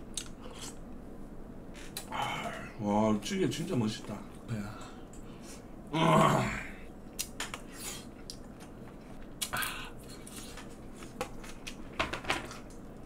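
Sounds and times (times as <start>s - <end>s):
person chewing: 0.1s - 0.9s.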